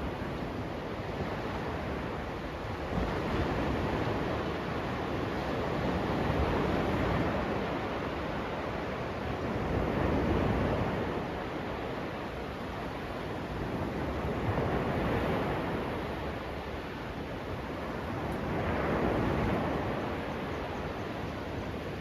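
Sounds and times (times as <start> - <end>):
sea waves breaking on beach: 0.0 - 22.0.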